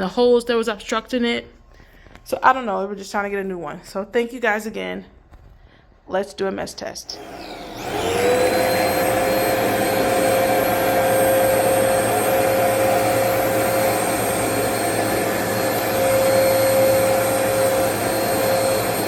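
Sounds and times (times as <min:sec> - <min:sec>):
vacuum cleaner motor whining: 0:07.1 - 0:19.0.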